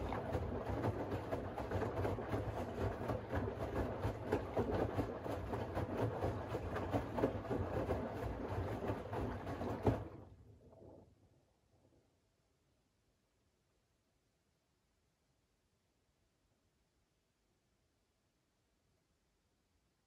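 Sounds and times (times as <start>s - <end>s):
washing machine drum sloshing: 0.0s - 10.2s.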